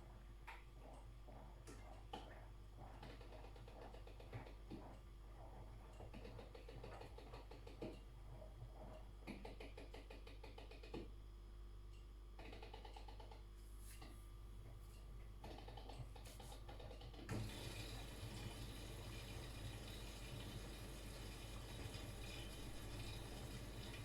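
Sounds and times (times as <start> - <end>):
washing machine drum tumbling: 17.3 - 24.0.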